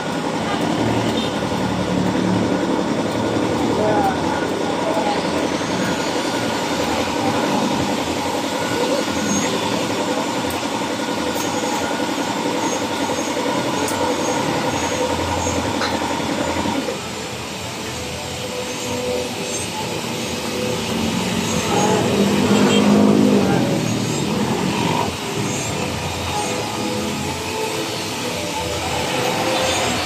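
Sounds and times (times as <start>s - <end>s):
vehicle running noise: 0.0s - 30.0s.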